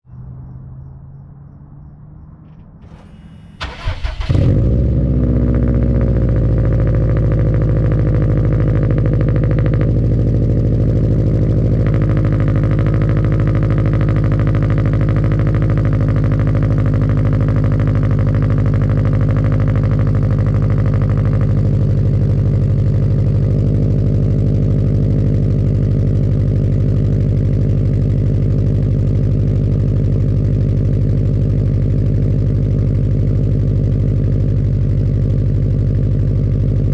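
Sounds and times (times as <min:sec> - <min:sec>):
car engine idling: 0:00.4 - 0:36.9
starter motor cranking: 0:02.8 - 0:04.6.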